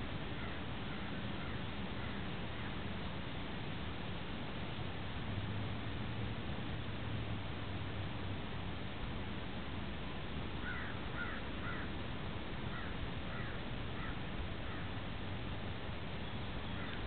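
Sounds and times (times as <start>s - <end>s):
steady background hiss: 0.0s - 17.0s
bird calling: 10.6s - 12.0s, 12.7s - 14.9s, 16.2s - 17.0s.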